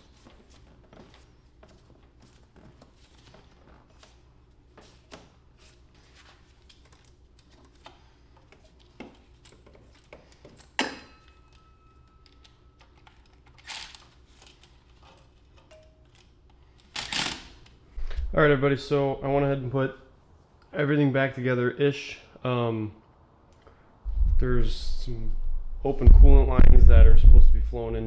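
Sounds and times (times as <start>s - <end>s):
light clicks and knocks of tools: 6.7s - 17.2s
metal parts clattering: 16.8s - 17.6s.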